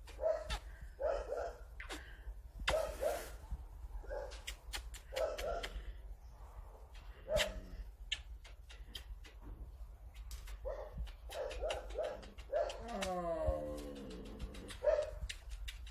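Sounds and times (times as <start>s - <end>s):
sharp clicking: 4.3s - 5.9s, 6.9s - 15.9s.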